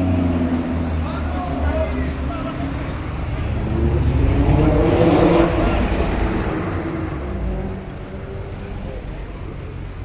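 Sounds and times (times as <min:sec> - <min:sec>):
steady traffic noise: 0:00.0 - 0:10.0.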